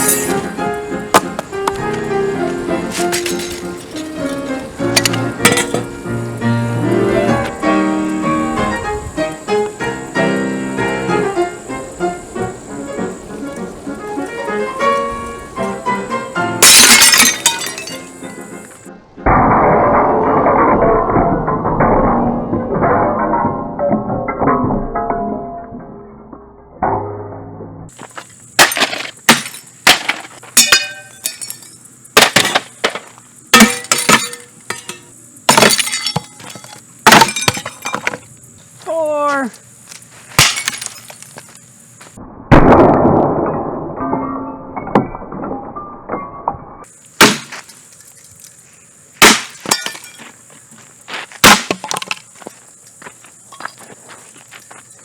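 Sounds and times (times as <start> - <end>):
glass breaking and clinking: 0.0 - 0.5, 3.0 - 4.4, 16.6 - 18.1, 28.6 - 33.0, 33.6 - 38.2, 40.4 - 41.3, 49.2 - 50.3
heavy blows smashing a fan: 0.0 - 6.0, 16.6 - 18.1, 28.6 - 38.3, 40.3 - 41.4, 47.2 - 47.8, 49.2 - 50.2, 51.4 - 52.2.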